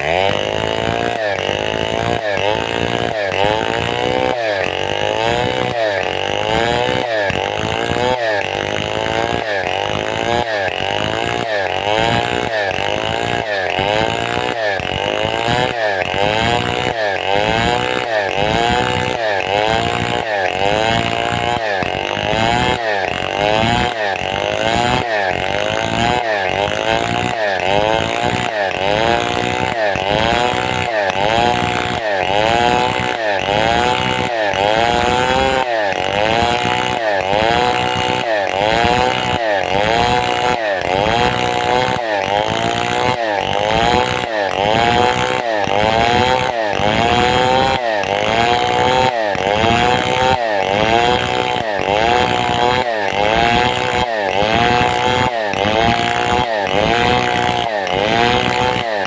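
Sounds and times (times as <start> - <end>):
chainsaw cutting timber: 0.0 - 59.0.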